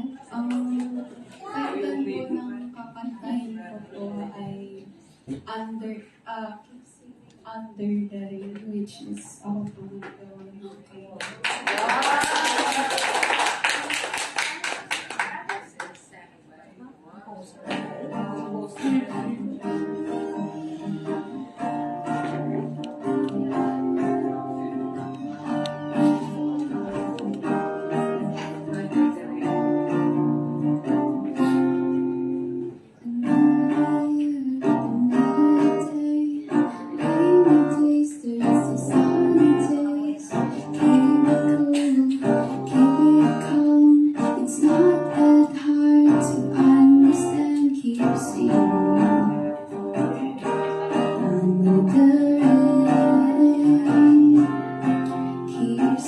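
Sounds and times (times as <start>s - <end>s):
acoustic guitar picked and strummed: 17.6s - 56.0s
person singing: 17.8s - 29.0s, 33.0s - 56.0s.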